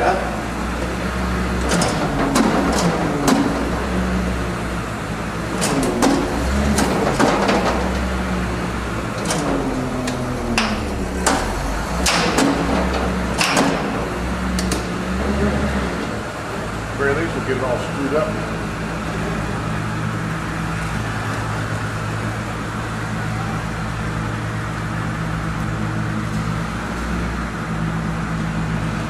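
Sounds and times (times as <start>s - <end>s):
vehicle engine humming: 0.0s - 29.0s
metallic clanks and clicks: 1.6s - 3.7s, 5.5s - 8.1s, 9.1s - 15.3s.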